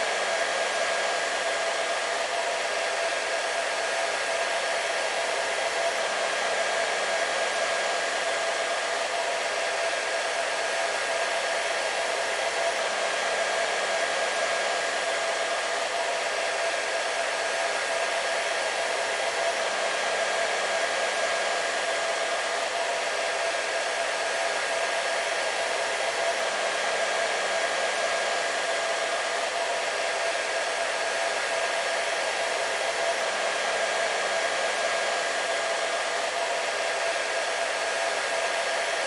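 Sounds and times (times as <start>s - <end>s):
hair dryer running: 0.0s - 39.0s.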